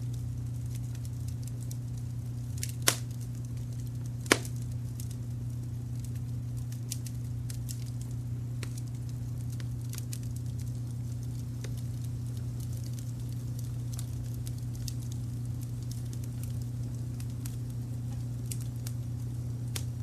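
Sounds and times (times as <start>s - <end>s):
wood fire crackling: 0.0s - 20.0s
loud sharp pops: 2.7s - 3.2s, 4.2s - 4.6s.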